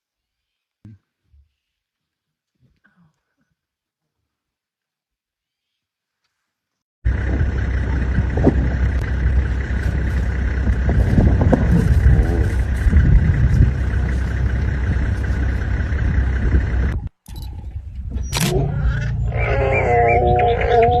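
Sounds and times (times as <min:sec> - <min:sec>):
vehicle engine rumbling: 0:07.0 - 0:21.0.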